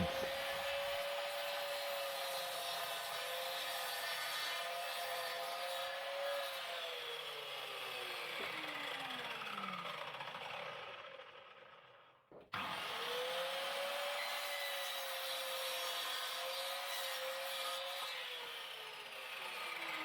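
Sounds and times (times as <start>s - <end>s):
table saw running: 0.0s - 11.8s, 12.6s - 20.0s
saw winding down whine: 6.2s - 11.9s.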